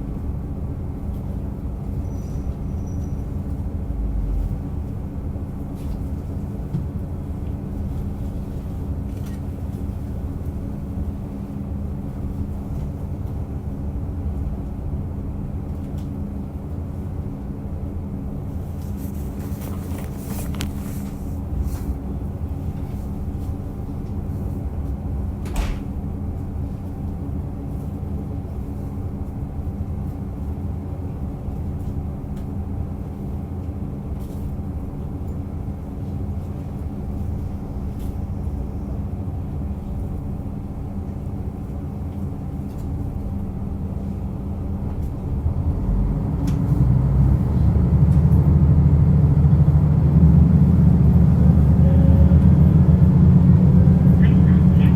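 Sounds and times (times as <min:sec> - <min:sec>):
diesel railcar engine drone: 0:00.0 - 0:54.9.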